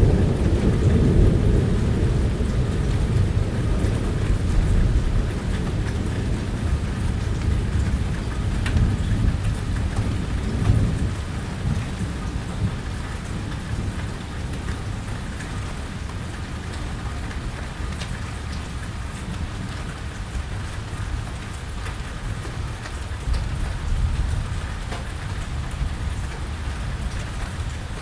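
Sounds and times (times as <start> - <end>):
thunder rumbling: 0.0 - 16.4, 22.6 - 28.0
rain falling on a porch: 0.0 - 28.0.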